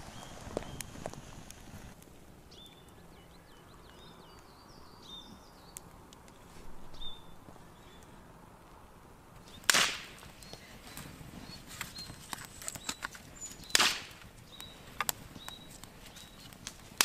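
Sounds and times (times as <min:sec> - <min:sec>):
small birds chirping: 0:00.0 - 0:01.3, 0:02.3 - 0:08.3, 0:09.4 - 0:17.0.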